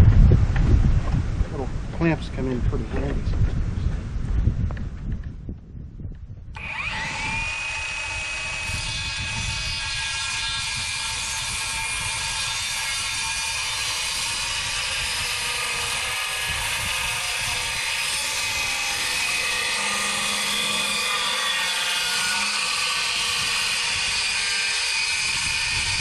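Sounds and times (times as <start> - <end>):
power tool motor whirring: 6.6 - 26.0.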